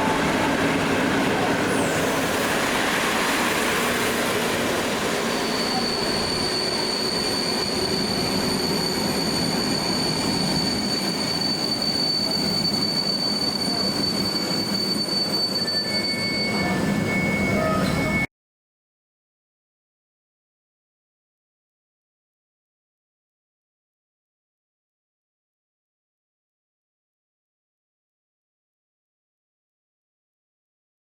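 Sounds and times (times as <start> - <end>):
train rolling rumble: 0.0 - 18.2
lower wheel squeal: 0.0 - 18.3
train wheels squealing: 0.0 - 18.3.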